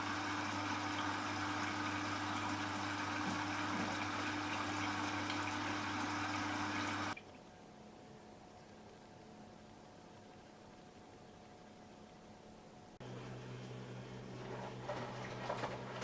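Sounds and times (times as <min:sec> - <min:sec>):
water rushing into washing machine: 0:00.0 - 0:07.2, 0:13.0 - 0:16.0
low electrical hum: 0:00.0 - 0:16.0.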